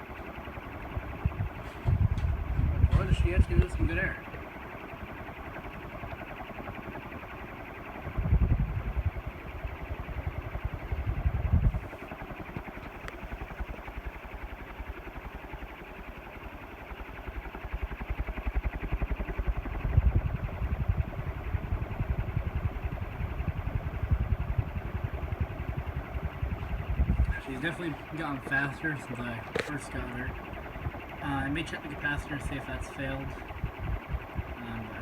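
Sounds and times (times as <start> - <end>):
wind buffeting microphone: 0.8 - 4.2, 8.1 - 12.0, 19.8 - 32.5, 33.1 - 35.0.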